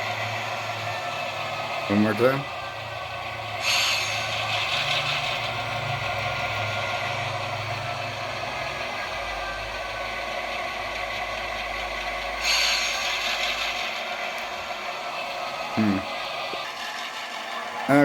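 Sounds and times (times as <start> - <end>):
model train motor humming: 0.0 - 18.0.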